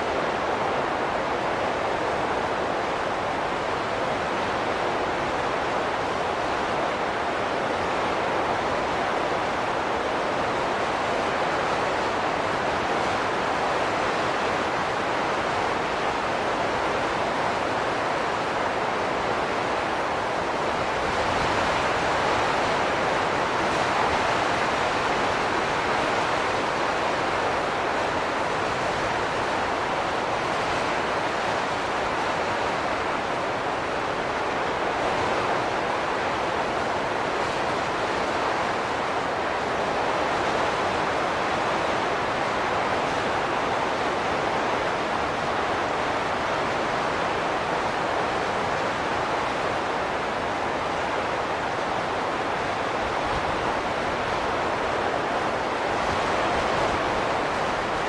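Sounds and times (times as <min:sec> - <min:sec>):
wind blowing: 0:42.4 - 0:58.0.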